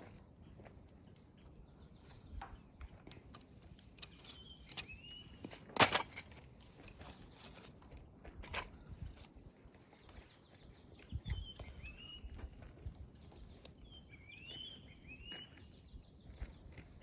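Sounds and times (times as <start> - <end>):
bird whistled call: 11.2 - 12.4, 13.8 - 15.7.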